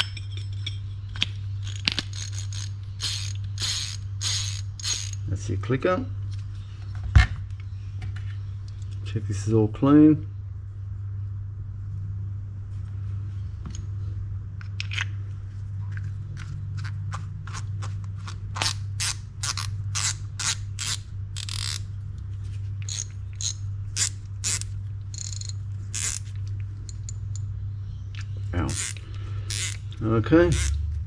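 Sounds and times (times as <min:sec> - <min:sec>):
metal parts scraping and clicking: 0:00.0 - 0:05.3, 0:18.2 - 0:21.9, 0:22.8 - 0:27.4, 0:28.7 - 0:30.8
steady low hum: 0:00.0 - 0:31.0.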